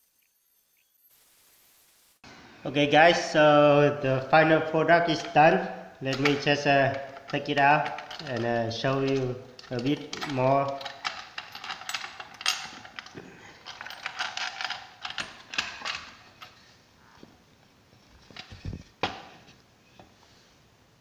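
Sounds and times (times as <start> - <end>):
wood and metal clamps clattering: 6.0 - 16.7.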